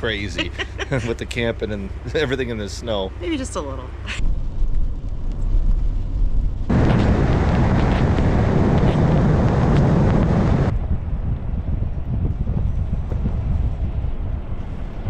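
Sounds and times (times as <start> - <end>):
steady low rumbling: 0.0 - 15.0
loud rushing noise: 6.7 - 11.1.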